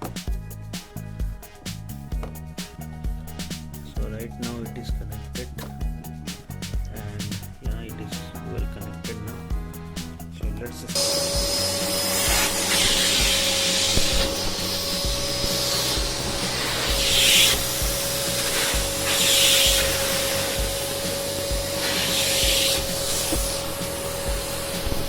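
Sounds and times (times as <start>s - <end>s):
vacuum cleaner motor whine: 11.0s - 25.0s
brush rubbing on carpet: 11.1s - 25.0s.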